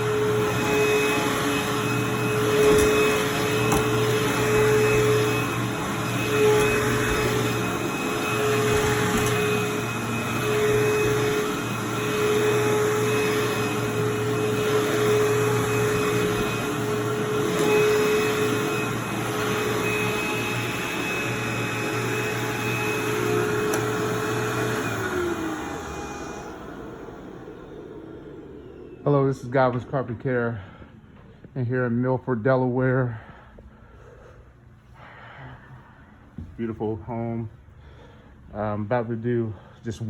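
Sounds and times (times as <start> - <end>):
vacuum cleaner running: 0.0 - 31.4.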